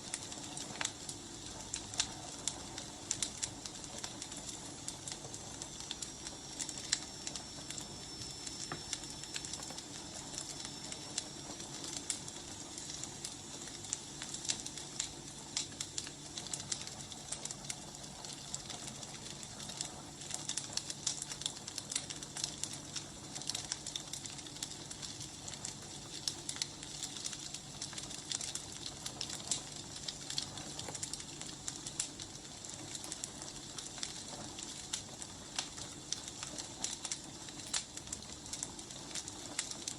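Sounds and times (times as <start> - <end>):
firewood crackling and popping: 0.0 - 39.9
soft fire hiss: 0.0 - 39.9.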